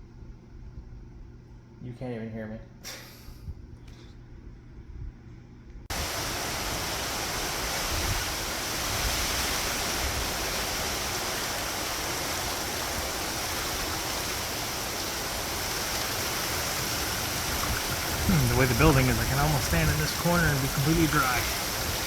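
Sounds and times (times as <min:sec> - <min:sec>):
heavy wind-driven rain: 0:05.9 - 0:22.0
low gusty wind rumbles: 0:05.9 - 0:22.0.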